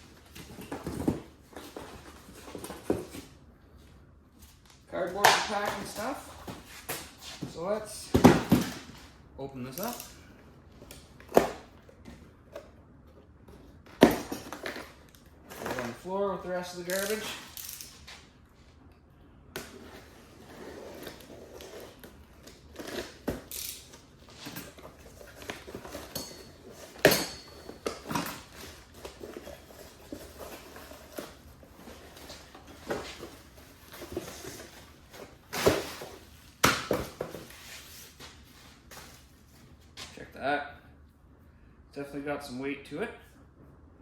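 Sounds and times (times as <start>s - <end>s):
cardboard and packing rustling: 0.0s - 9.2s, 19.7s - 40.2s.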